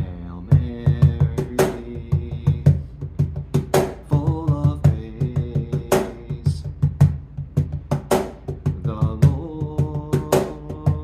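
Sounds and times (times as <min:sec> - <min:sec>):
person singing praise song: 0:00.0 - 0:02.9, 0:04.0 - 0:06.8, 0:08.7 - 0:11.0
cajon drumming: 0:00.0 - 0:11.0.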